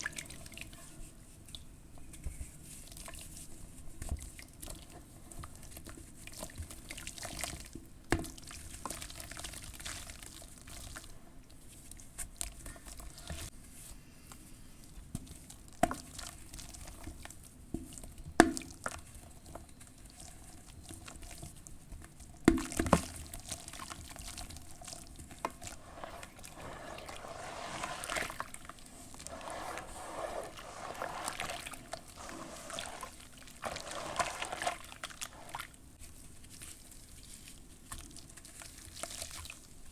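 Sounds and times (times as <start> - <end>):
charcoal ash crumbling: 22.5 - 35.8.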